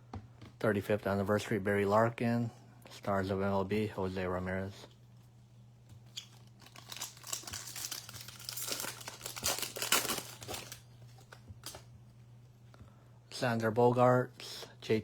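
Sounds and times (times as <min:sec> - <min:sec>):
foil wrapper crinkling and tearing: 0:06.2 - 0:11.8.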